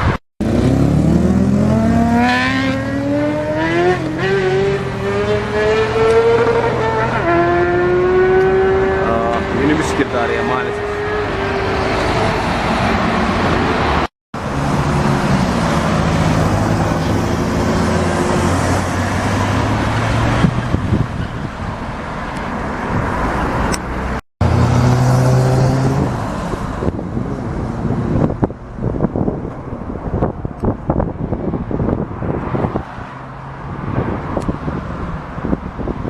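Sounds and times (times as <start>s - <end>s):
road noise: 0.0s - 36.0s
wind noise: 16.4s - 24.0s, 25.4s - 36.0s.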